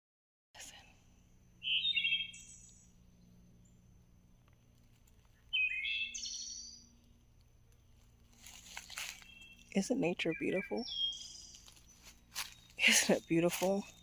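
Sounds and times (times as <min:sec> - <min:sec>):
songbird singing: 0:00.6 - 0:14.0.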